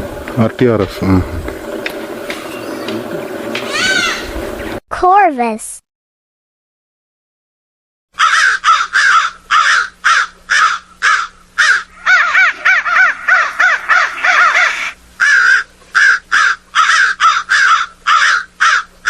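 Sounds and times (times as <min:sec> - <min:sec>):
crow cawing: 0:03.7 - 0:04.3, 0:08.2 - 0:19.0.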